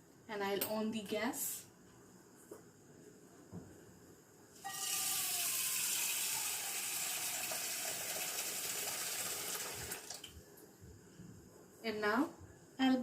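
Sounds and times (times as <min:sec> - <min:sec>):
water running: 0:04.6 - 0:10.4.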